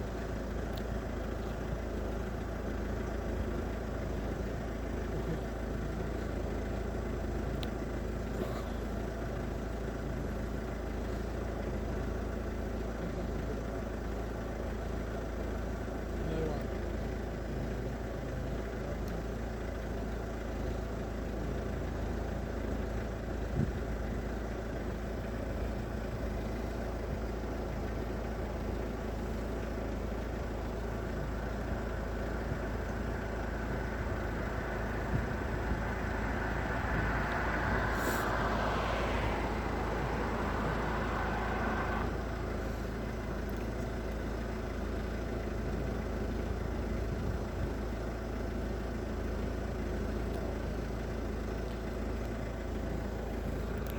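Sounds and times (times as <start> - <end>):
low engine rumble: 0.0 - 53.9
vehicle rushing past: 31.1 - 43.4.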